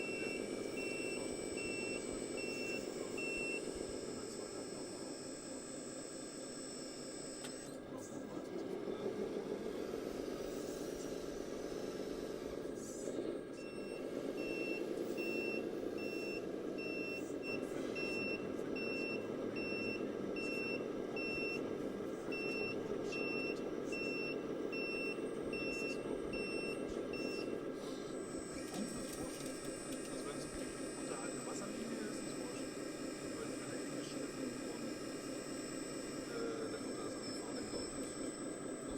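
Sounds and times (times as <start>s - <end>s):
reversing beeper: 0.0s - 5.6s, 22.4s - 38.9s
steady background hum: 0.0s - 38.9s.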